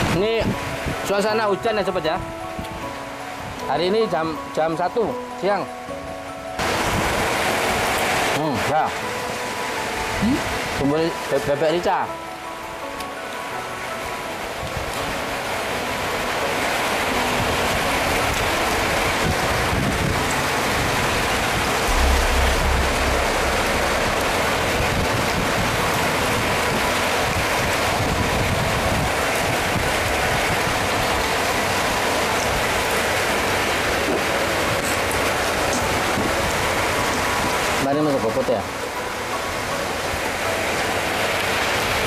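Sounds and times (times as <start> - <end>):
rain falling: 6.3 - 42.0
low rumble: 21.9 - 26.0.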